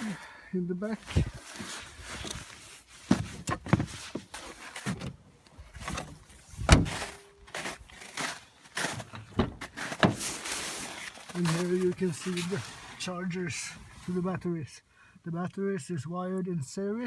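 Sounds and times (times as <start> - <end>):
rustling: 0.9 - 14.3
knocks and thumps: 3.1 - 4.3, 5.8 - 7.1, 8.9 - 10.2.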